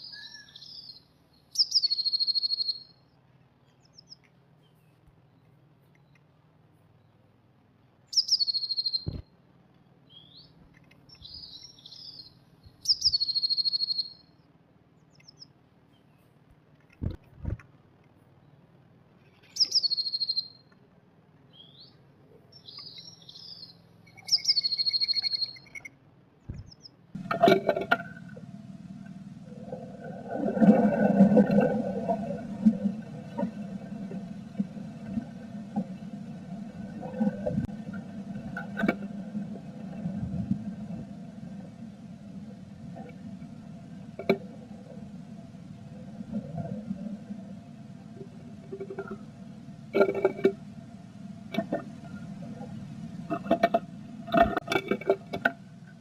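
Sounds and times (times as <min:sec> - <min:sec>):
songbird trilling: 0:00.0 - 0:03.0, 0:08.1 - 0:09.2, 0:10.1 - 0:14.4, 0:19.4 - 0:20.7, 0:21.5 - 0:25.9
soft bird calls: 0:00.0 - 0:07.3, 0:07.9 - 0:17.0, 0:18.3 - 0:27.0
low rumbling with hum: 0:00.0 - 0:56.0.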